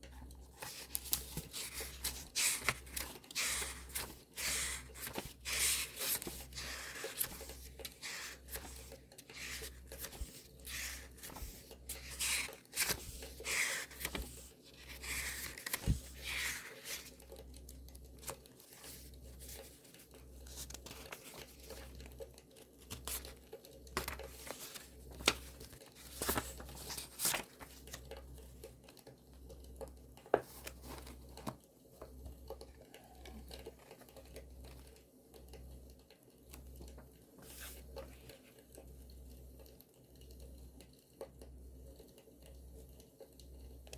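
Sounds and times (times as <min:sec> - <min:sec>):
paper rustling: 0:00.1 - 0:17.3, 0:18.1 - 0:22.1, 0:22.8 - 0:23.4, 0:24.0 - 0:28.1.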